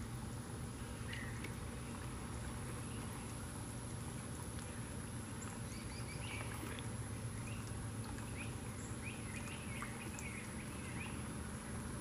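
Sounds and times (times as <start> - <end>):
faint bird chirps: 0.9 - 2.0, 4.7 - 11.3.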